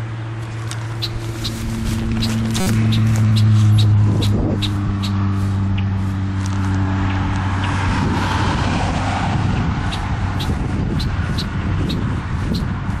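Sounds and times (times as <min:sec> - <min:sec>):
car passing: 0:00.0 - 0:13.0
vehicle engine hum: 0:00.0 - 0:13.0
bird alarm chirps: 0:02.2 - 0:04.0, 0:09.9 - 0:12.7.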